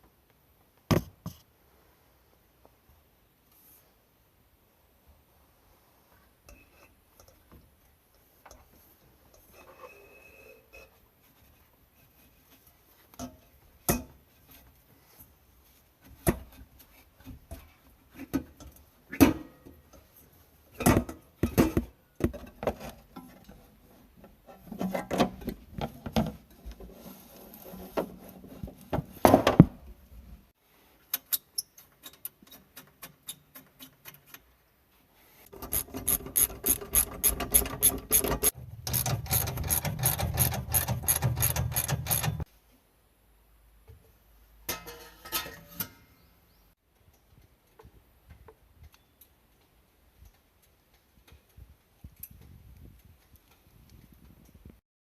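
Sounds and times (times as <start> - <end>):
tools knocking and scraping metal: 35.6 - 42.5, 44.7 - 46.2.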